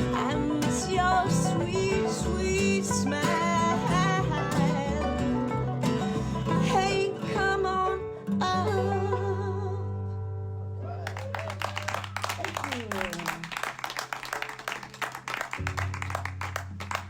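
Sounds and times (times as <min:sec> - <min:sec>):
person singing: 0:00.0 - 0:05.4, 0:06.1 - 0:09.9
bluegrass string band playing: 0:00.0 - 0:17.0.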